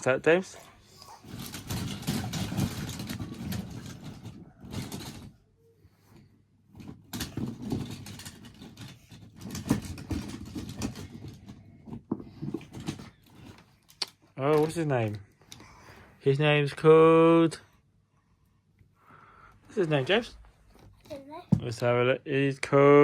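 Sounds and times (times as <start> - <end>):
toy trucks clattering and scraping: 0.0 - 5.4, 6.0 - 15.6.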